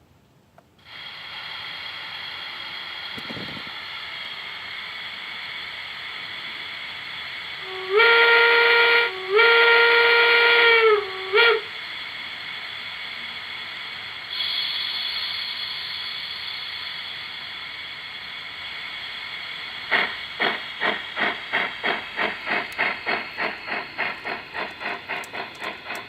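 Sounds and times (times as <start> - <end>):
steam hiss: 0.8 - 26.0
steam locomotive whistle blasts: 7.6 - 11.8.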